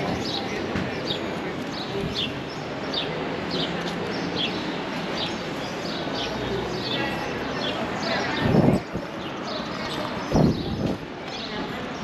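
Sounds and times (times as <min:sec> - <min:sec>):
street noise: 0:00.0 - 0:12.0.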